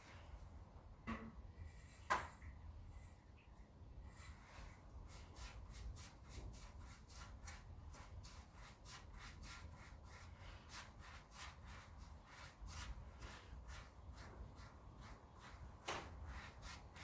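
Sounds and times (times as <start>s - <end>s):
hand rubbing on wood: 4.3s - 17.0s.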